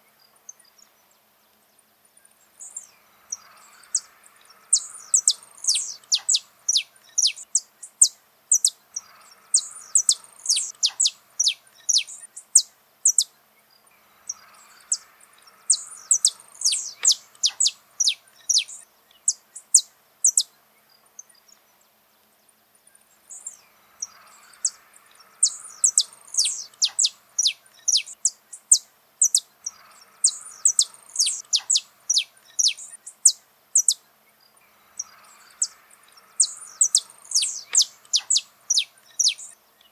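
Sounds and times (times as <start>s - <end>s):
finch singing: 2.6s - 21.6s, 23.1s - 39.9s.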